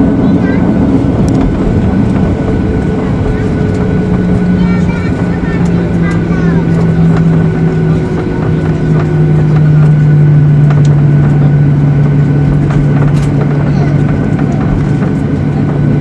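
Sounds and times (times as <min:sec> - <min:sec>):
jet engines droning: 0:00.0 - 0:16.0.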